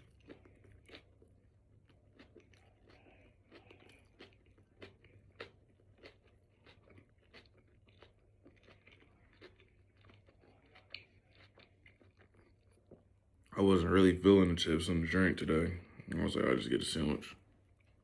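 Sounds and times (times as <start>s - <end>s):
close-up chewing: 0.0s - 13.5s, 17.5s - 18.0s.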